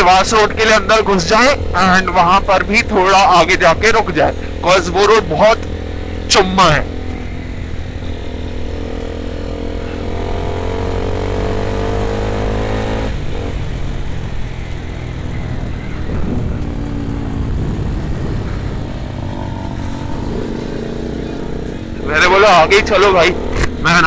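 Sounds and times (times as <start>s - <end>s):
motorcycle engine: 0.0s - 24.0s
wind noise on microphone: 13.1s - 21.0s.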